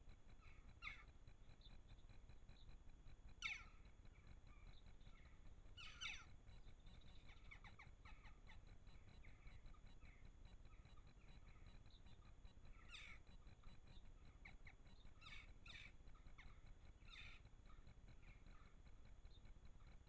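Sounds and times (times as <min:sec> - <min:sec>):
birds calling faintly: 0:00.0 - 0:20.0
low background hiss: 0:00.0 - 0:20.0.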